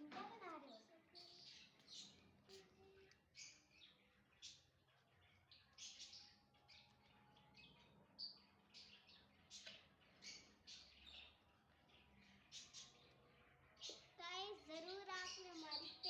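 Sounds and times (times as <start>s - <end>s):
lovebirds chirping: 0.0s - 16.0s.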